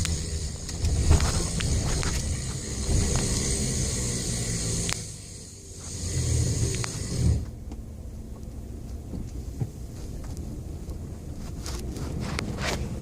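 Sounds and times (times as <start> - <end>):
static-like hissing: 0.0 - 7.4
truck engine rumble: 0.0 - 13.0.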